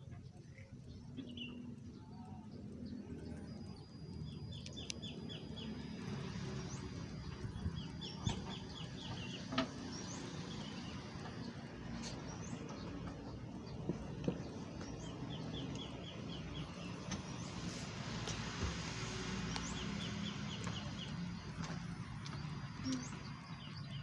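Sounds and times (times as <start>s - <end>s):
small birds chirping: 0.0s - 24.0s
sharp clicks: 2.6s - 6.4s.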